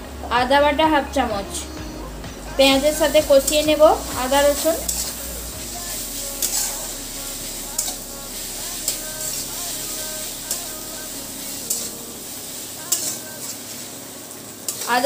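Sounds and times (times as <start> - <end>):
onions sizzling in hot oil: 2.6 - 15.0
spatula scraping a pan: 3.4 - 10.8, 11.4 - 14.0.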